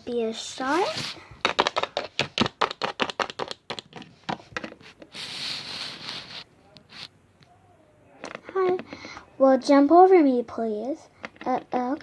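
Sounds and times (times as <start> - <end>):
soft rustle: 0.4 - 1.3, 4.8 - 7.2
plastic toys tapping on hard surface: 1.4 - 4.7.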